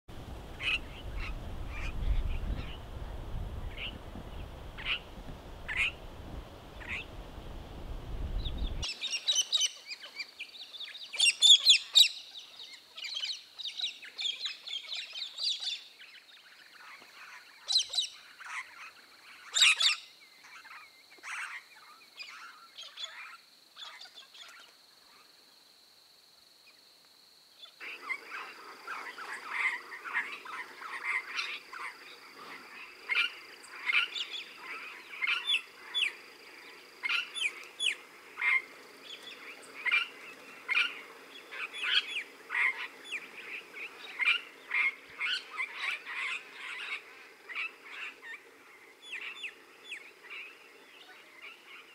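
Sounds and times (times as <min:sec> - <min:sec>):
birds chirping and calling: 0:00.6 - 0:02.9, 0:03.6 - 0:05.1, 0:05.7 - 0:06.0, 0:06.8 - 0:07.2, 0:08.4 - 0:24.6, 0:27.8 - 0:51.9
birds chattering: 0:05.7 - 0:06.0.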